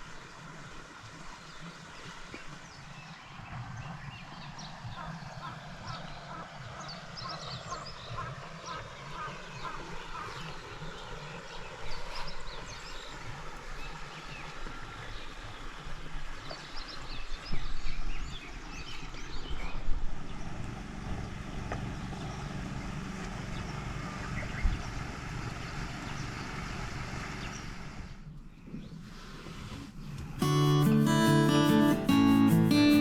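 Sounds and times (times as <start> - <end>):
low motor hum: 19.6 - 28.5
short high chirps: 30.4 - 33.0.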